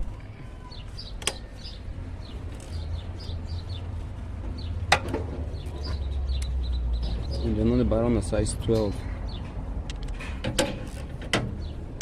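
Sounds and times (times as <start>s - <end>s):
small bird chirping: 0.1s - 7.7s.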